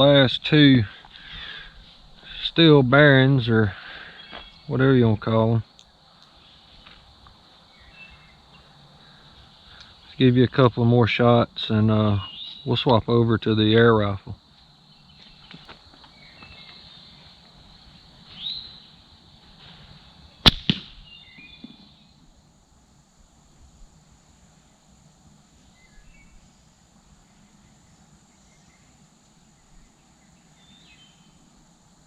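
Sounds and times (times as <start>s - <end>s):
slingshot cracks: 20.4s - 21.0s.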